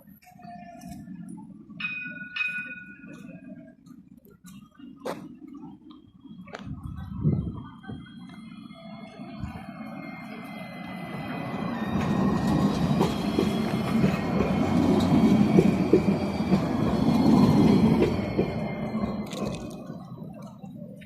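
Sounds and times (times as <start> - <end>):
tram rumbling past: 5.3 - 21.0
wheels clicking on rails: 11.1 - 21.0.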